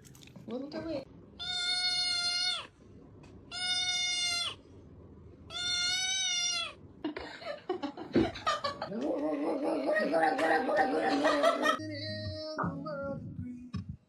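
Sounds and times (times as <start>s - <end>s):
cat meowing: 1.4s - 2.7s, 3.5s - 4.6s, 5.5s - 6.8s.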